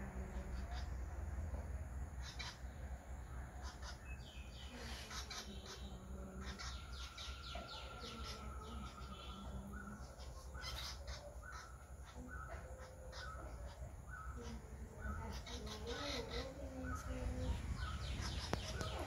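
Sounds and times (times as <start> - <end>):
birds calling: 0.0 - 19.0
steady low rumble: 13.5 - 19.0.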